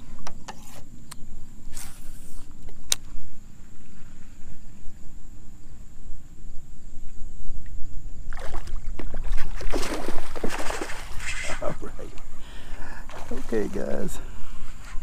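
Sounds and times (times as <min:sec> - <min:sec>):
water splashing: 0:08.3 - 0:11.9, 0:13.1 - 0:14.2.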